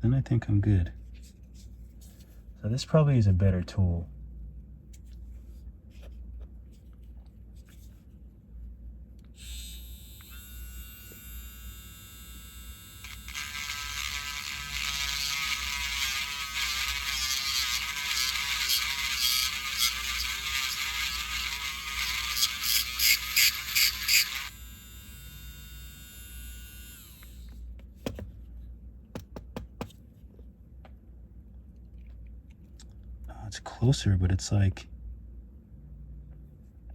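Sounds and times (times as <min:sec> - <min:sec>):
rotary tool grinding resin: 0:09.4 - 0:27.4
rotary tool motor whining: 0:09.4 - 0:27.6.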